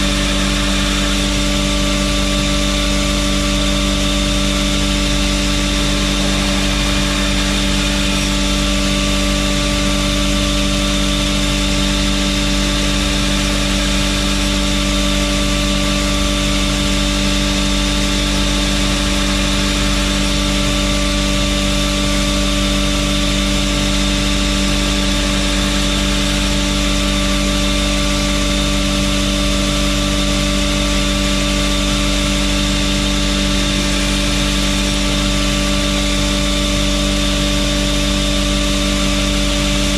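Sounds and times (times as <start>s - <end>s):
belt grinder motor humming: 0.0s - 30.5s.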